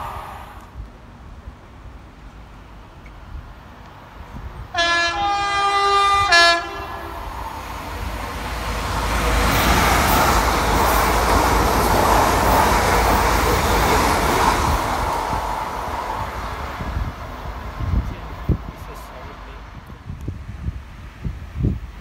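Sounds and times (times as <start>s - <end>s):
train passing with wheel rumble: 0.0s - 22.0s
two-tone train horn: 4.7s - 7.4s.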